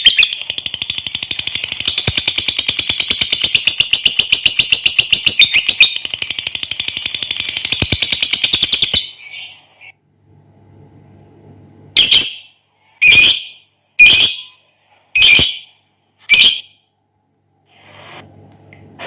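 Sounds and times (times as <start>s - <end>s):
shrill bird squawks: 0.0s - 1.0s, 12.0s - 14.6s, 15.2s - 16.8s
bird chattering trill: 0.0s - 9.9s.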